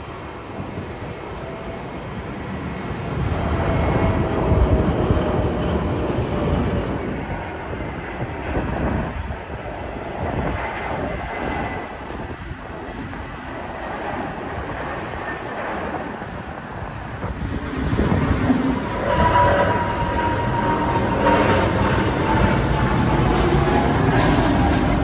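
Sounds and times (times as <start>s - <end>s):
engine rumble: 16.6s - 25.0s.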